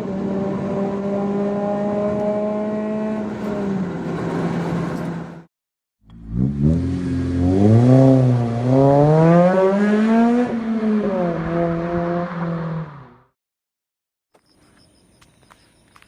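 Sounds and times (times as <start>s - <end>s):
car engine accelerating hard: 0.0s - 5.5s, 6.1s - 13.3s.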